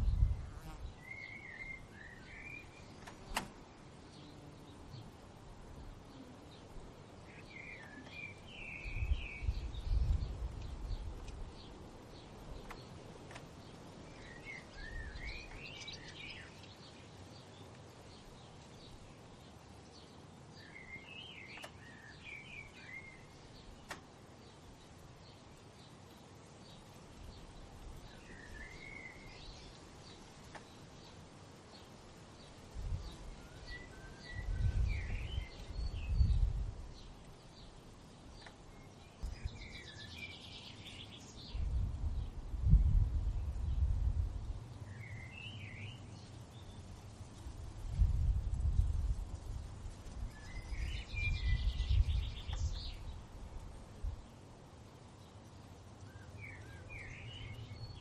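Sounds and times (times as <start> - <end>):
wind gusts rumbling: 0.0 - 0.5, 8.6 - 16.2, 41.4 - 45.0, 47.0 - 54.3
soft steady hiss: 0.0 - 58.0
songbirds singing: 0.0 - 58.0
faint bird chirps: 0.1 - 3.5, 6.0 - 10.2.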